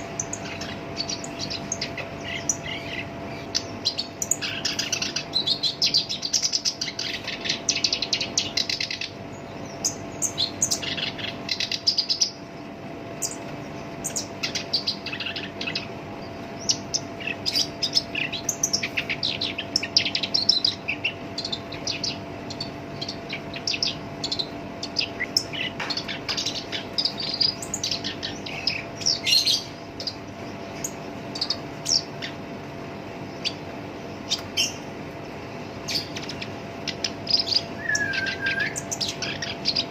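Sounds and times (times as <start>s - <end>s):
faint steady hum: 0.0s - 39.9s
warbler chattering song: 0.0s - 39.9s.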